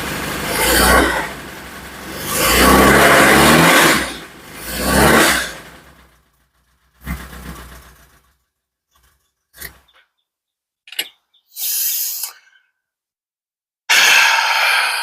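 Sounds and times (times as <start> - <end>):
car engine revving with knock: 0.0 - 9.8
short hiss: 11.6 - 12.4.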